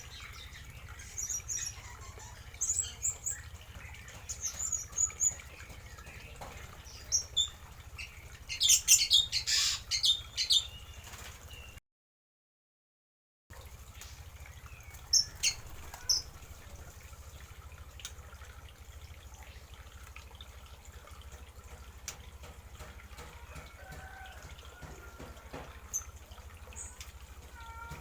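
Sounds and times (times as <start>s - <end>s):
birds chirping: 0.0s - 11.8s, 14.0s - 17.4s, 21.8s - 28.0s.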